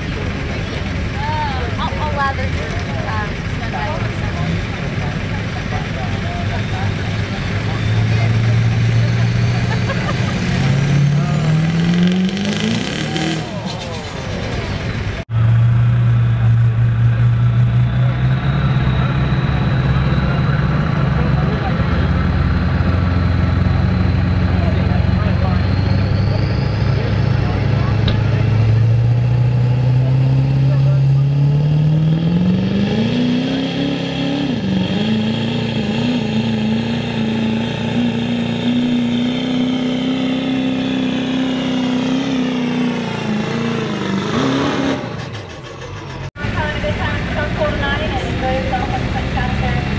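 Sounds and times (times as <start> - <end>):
diesel truck engine idling: 0.0 - 10.6, 13.4 - 31.4, 45.0 - 49.9.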